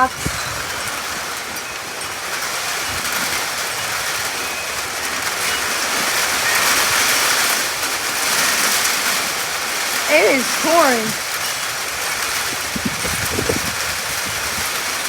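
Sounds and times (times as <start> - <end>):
heavy rain pouring: 0.0 - 15.0
water dripping off rooftops: 0.0 - 15.0.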